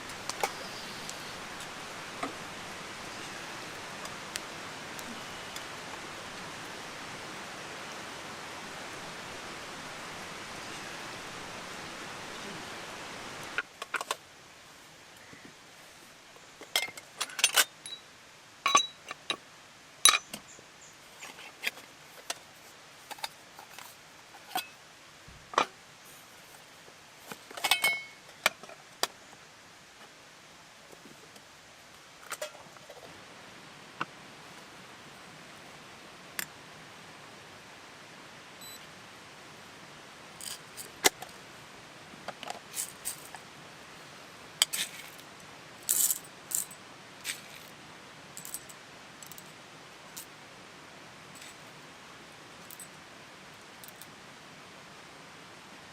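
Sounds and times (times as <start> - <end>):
metal objects clinking and tapping: 16.8 - 18.0, 18.7 - 19.4, 20.1 - 20.4, 27.6 - 28.2.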